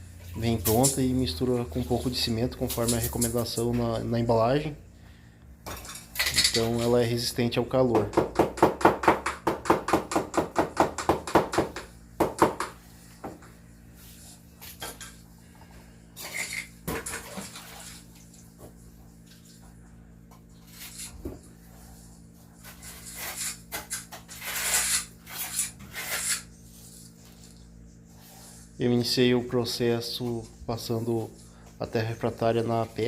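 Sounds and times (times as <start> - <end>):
trowel scraping through mortar: 20.6 - 21.2, 22.5 - 27.6.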